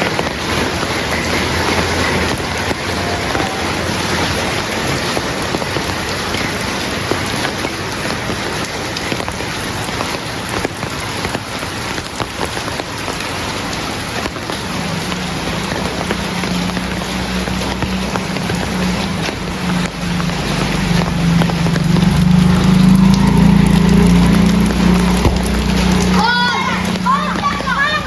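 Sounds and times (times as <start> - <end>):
heavy rain falling: 0.0 - 28.0
drops ticking on a hard surface: 14.2 - 26.2.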